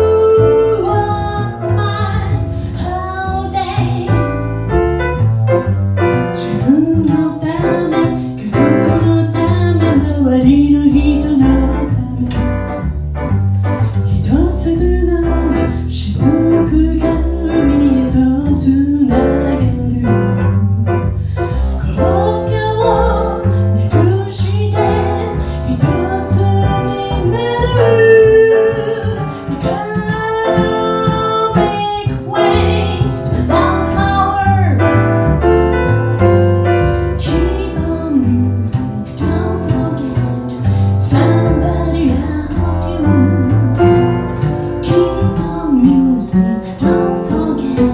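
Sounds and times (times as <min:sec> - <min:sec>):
woman singing: 0:00.0 - 0:04.5, 0:06.4 - 0:12.8, 0:14.0 - 0:35.0, 0:37.2 - 0:47.9
bass: 0:00.0 - 0:47.9
piano: 0:00.0 - 0:47.9.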